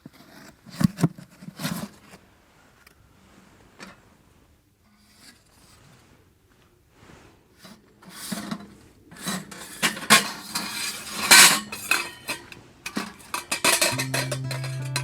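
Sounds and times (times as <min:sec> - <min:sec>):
metal cookware clattering: 0:09.5 - 0:15.0
guitar music: 0:13.9 - 0:15.0.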